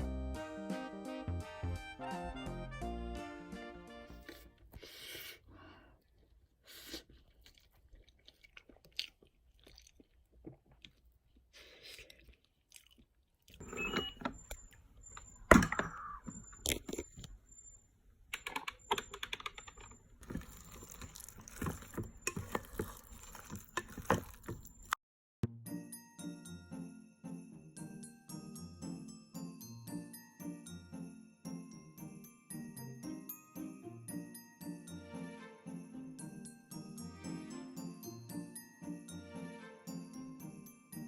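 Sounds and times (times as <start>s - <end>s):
chewing: 5.9s - 13.6s, 20.2s - 25.0s
utensils clicking on dishes: 19.7s - 25.0s.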